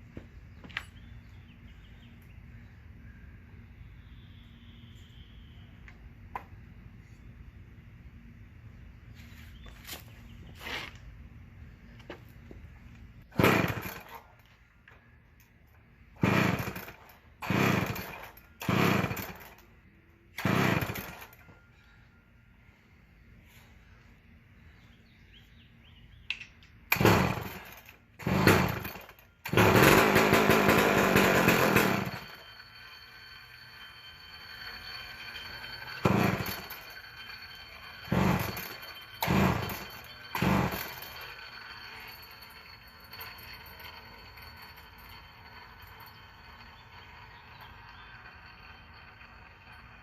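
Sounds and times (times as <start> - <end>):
chainsaw firing in short bursts: 13.3 - 14.2, 16.2 - 19.5, 20.4 - 21.3, 26.9 - 32.3, 36.0 - 36.7, 38.1 - 41.1.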